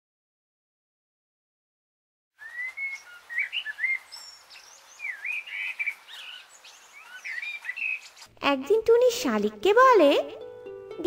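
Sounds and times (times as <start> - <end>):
birds chirping and whistling: 2.4 - 8.3
faint hiss: 2.4 - 8.4.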